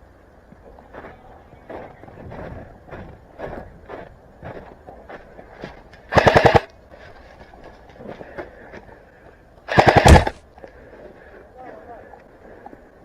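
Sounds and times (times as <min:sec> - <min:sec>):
airsoft rifle full-auto bursts: 0:06.1 - 0:06.7, 0:09.7 - 0:10.4.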